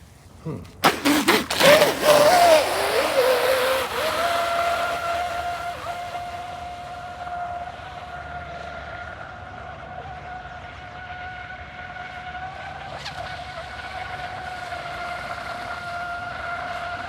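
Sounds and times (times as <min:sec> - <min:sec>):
model boat motor whining: 0:00.4 - 0:08.1.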